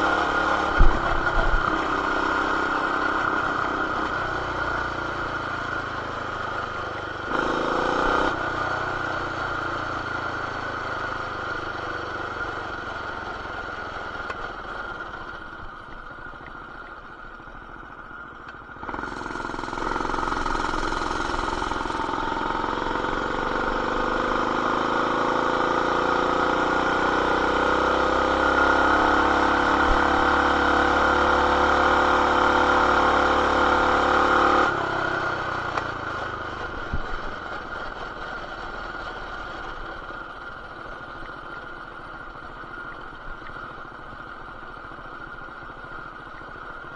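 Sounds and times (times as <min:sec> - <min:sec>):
muffled motorcycle engine: 0:00.0 - 0:46.9.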